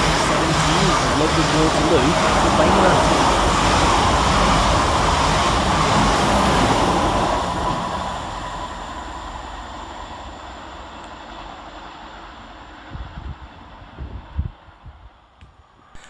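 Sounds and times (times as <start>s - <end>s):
thin whine: 0.0s - 7.2s
electric train passing at speed: 0.0s - 16.0s.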